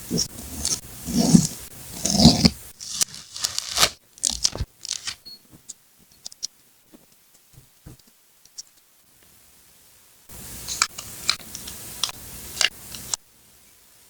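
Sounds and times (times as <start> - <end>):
paper tearing and rustling: 0.1 - 5.2.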